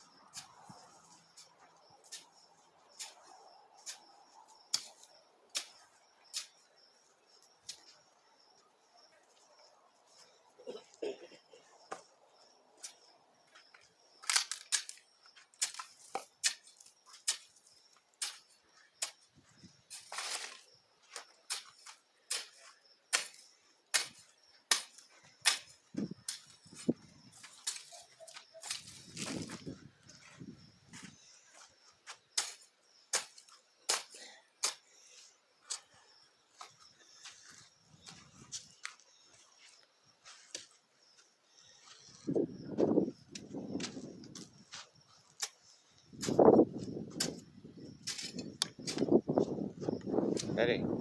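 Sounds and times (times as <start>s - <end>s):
hand tool striking soil: 0.3s - 0.6s, 3.0s - 3.2s, 3.8s - 4.1s, 4.7s - 6.6s, 15.6s - 19.2s, 21.5s - 26.6s, 27.4s - 29.5s, 32.3s - 34.9s, 47.2s - 49.1s
hand tool chopping into soil: 22.3s - 26.5s, 32.4s - 34.8s.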